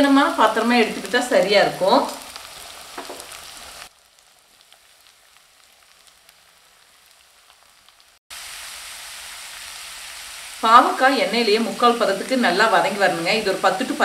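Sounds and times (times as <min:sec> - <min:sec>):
vegetables sizzling in hot oil: 0:00.0 - 0:14.0
faint crackle: 0:01.0 - 0:10.6.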